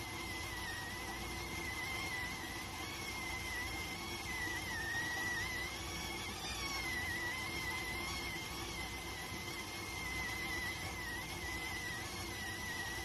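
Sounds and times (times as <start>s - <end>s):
rice cooker whistling: 0.0s - 13.0s.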